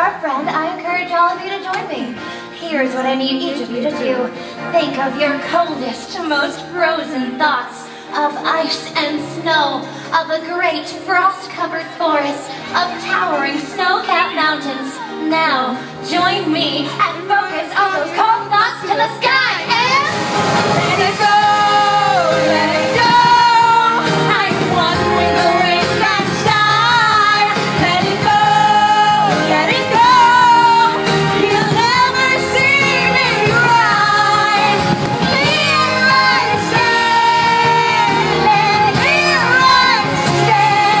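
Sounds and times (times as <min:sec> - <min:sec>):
band backing track: 0:00.0 - 0:41.0
woman singing: 0:00.0 - 0:41.0.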